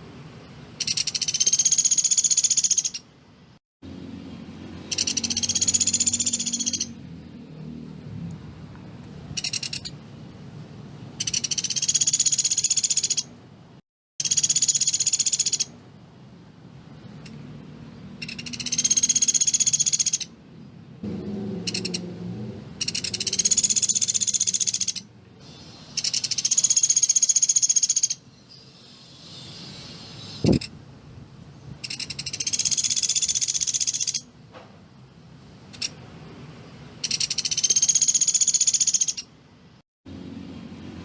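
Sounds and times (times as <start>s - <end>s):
woodpecker calling in rapid trills: 0.8s - 3.1s, 4.8s - 7.0s, 9.4s - 10.0s, 11.2s - 13.3s, 14.2s - 15.7s, 18.2s - 20.3s, 21.7s - 22.0s, 22.8s - 25.1s, 26.0s - 28.2s, 31.8s - 34.3s, 37.0s - 39.3s.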